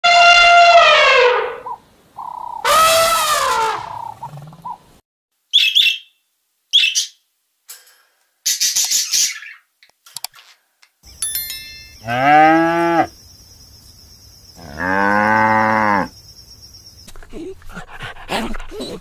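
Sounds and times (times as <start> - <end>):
elephant call: 0.0 - 4.4
budgerigar chirps: 1.6 - 2.7, 5.5 - 7.2
parakeet harsh screech: 2.6 - 4.0.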